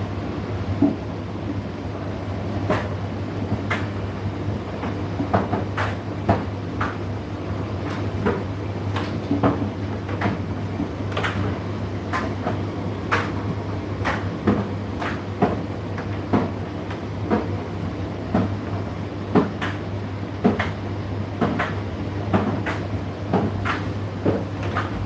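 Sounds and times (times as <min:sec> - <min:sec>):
tumble dryer motor hum: 0:23.3 - 0:25.0.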